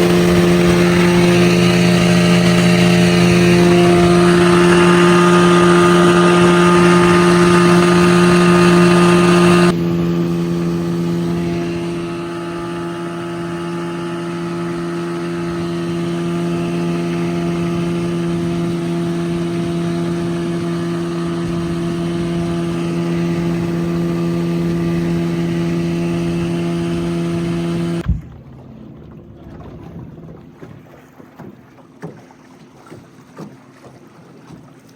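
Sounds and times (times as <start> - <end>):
wind on microphone: 0.0 - 9.8
outboard motor running: 0.0 - 34.9.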